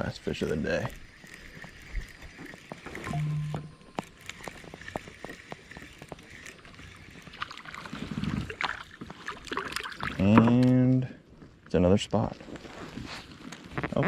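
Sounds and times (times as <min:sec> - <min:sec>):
water sloshing: 0:00.9 - 0:10.7.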